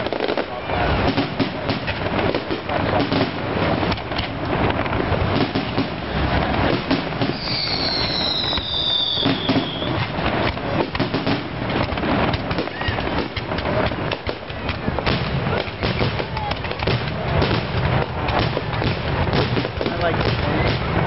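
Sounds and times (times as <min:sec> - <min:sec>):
fireworks bangs and crackles: 0:00.0 - 0:21.0
high falling whistle: 0:07.3 - 0:10.0.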